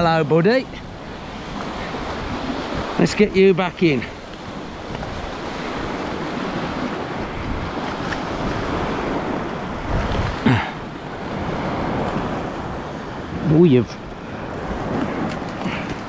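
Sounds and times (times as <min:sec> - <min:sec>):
sea waves washing on shore: 0:00.0 - 0:16.0
wind buffeting microphone: 0:00.0 - 0:16.0.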